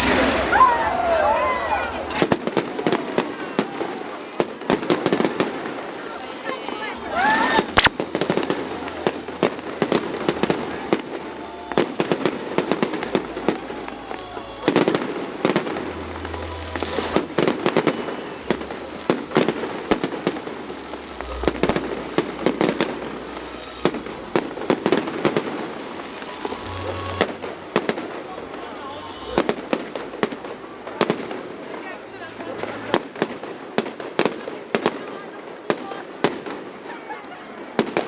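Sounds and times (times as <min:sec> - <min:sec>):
fireworks bangs and crackling: 0:00.0 - 0:38.0.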